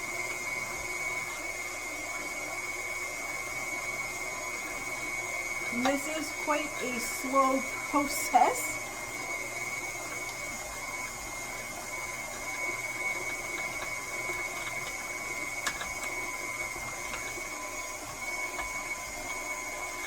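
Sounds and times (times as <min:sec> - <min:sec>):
stand mixer motor whine: 0:00.0 - 0:20.0.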